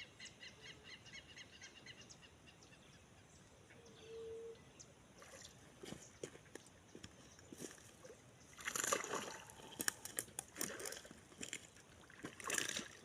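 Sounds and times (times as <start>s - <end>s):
water splashing and sloshing: 5.1s - 6.6s, 7.5s - 13.0s.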